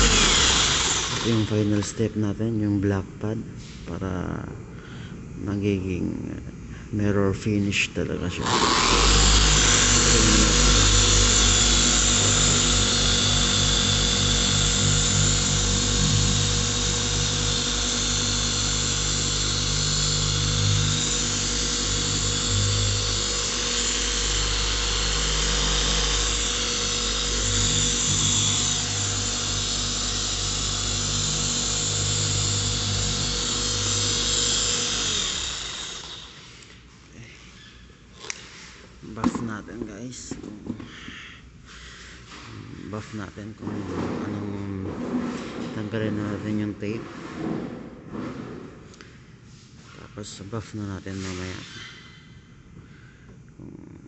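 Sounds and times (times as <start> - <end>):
polishing machine motor hum: 0.0 - 2.0, 8.4 - 36.6.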